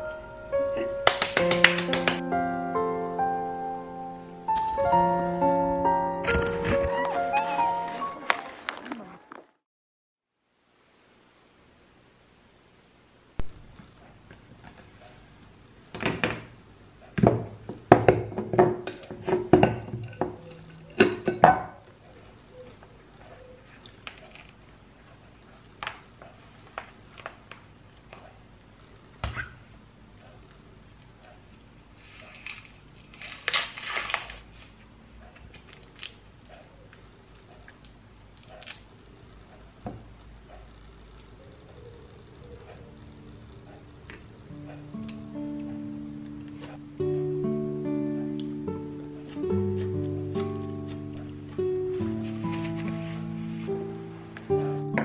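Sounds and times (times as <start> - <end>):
crackly rustle: 6.3 - 9.6, 21.9 - 29.2, 30.1 - 39.5, 49.2 - 54.5.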